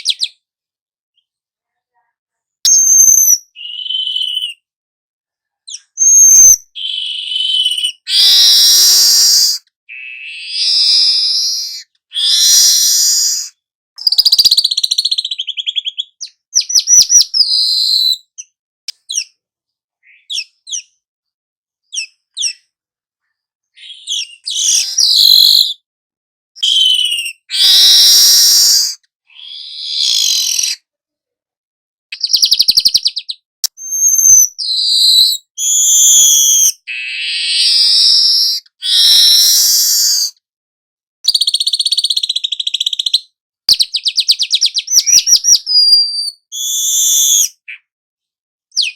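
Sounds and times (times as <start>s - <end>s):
birdsong chirps and trills: 2.8s - 4.7s, 5.7s - 19.4s, 20.0s - 21.0s, 23.7s - 25.8s, 26.6s - 30.8s, 32.2s - 40.3s, 41.3s - 47.9s.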